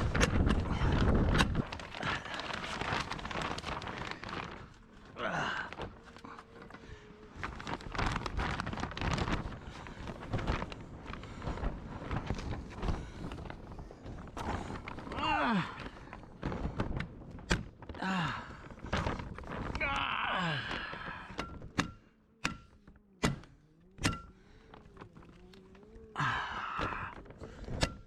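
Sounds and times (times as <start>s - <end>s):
wind rumbling on microphone: 0.0s - 5.1s, 6.7s - 21.8s.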